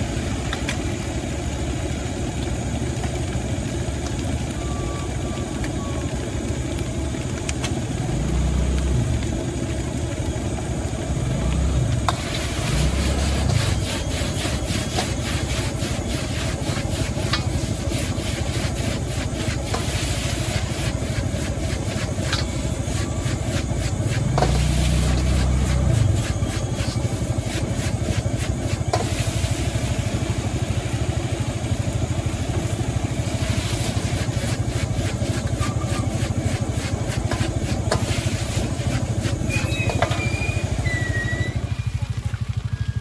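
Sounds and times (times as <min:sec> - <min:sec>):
gas burner rushing: 0:00.0 - 0:42.0
metal spatula scraping wok: 0:12.1 - 0:29.6, 0:33.4 - 0:41.3.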